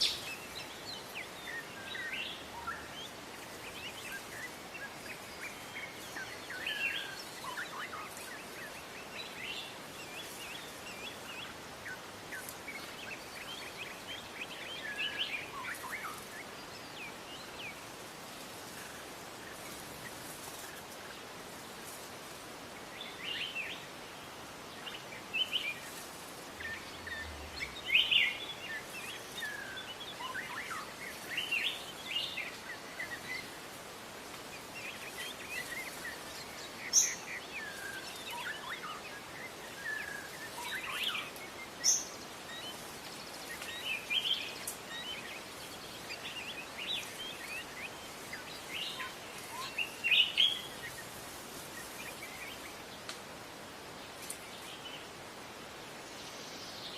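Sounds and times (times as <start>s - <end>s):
background hiss: 0.0s - 56.9s
songbirds chirping: 0.0s - 56.9s.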